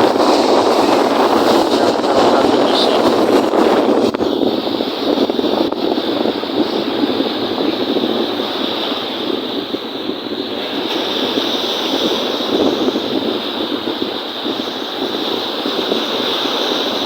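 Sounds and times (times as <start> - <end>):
lake waves washing: 0.0 - 17.0
wind buffeting microphone: 0.0 - 17.0.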